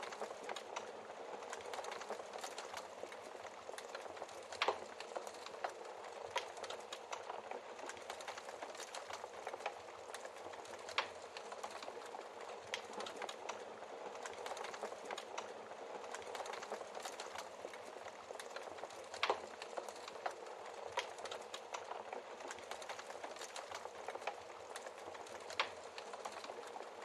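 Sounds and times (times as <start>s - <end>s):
burning logs popping: 0.0s - 27.0s
wood fire crackling: 0.0s - 27.0s.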